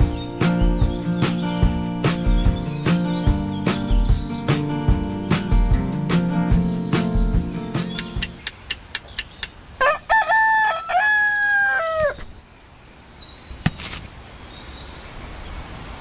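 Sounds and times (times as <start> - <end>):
sharp clicks: 7.9 - 9.6
rooster crowing: 9.8 - 12.2.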